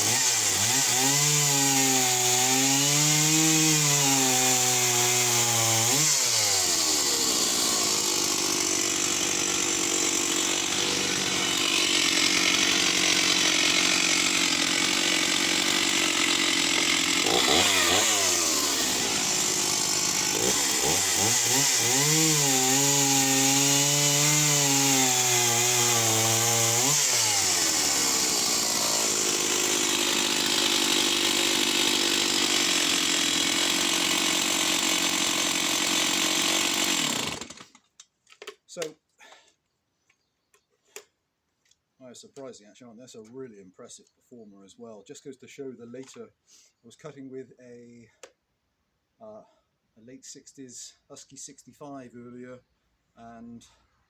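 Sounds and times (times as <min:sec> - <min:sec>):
chainsaw cutting wood: 0:00.0 - 0:38.6.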